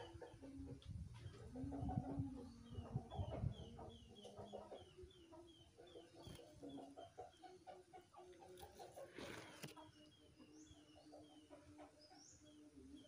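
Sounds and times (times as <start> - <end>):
hens clucking: 0.0 - 10.0.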